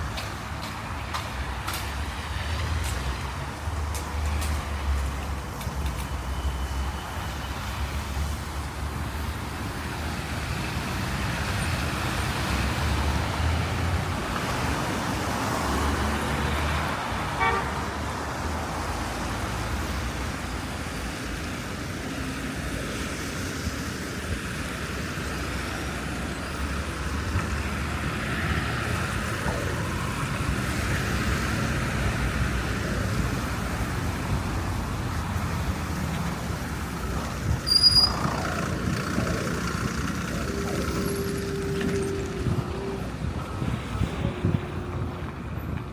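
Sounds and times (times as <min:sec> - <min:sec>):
road traffic tyre noise: 0:00.0 - 0:45.9
car horn toot: 0:17.4 - 0:17.9.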